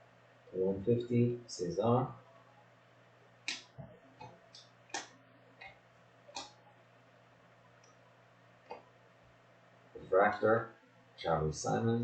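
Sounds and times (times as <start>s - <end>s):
trading cards flicking and clicking: 3.4s - 6.6s.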